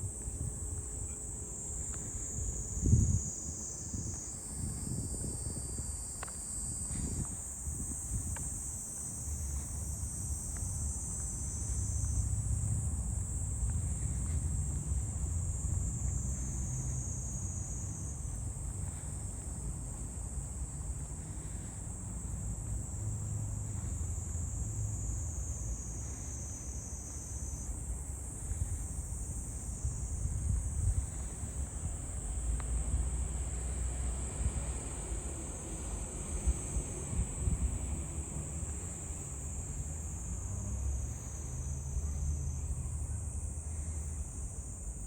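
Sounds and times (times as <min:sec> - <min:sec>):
insect chorus: 0:00.0 - 0:45.0.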